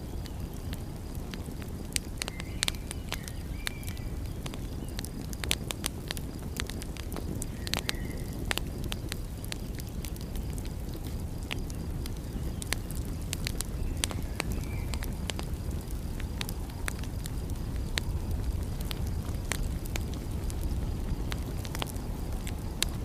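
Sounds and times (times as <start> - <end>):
wood fire crackling and popping: 0.0 - 23.0
steady low rumble: 8.4 - 23.0.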